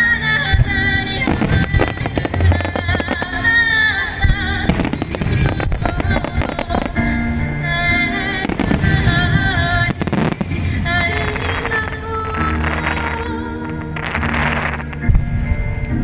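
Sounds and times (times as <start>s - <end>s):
music playing: 0.0s - 16.0s
firework bangs and crackles: 0.3s - 7.6s, 8.2s - 16.0s.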